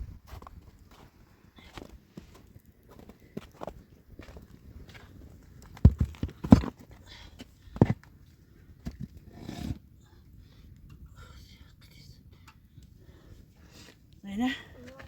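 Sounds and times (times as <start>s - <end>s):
dull heavy thumps: 5.8s - 6.8s.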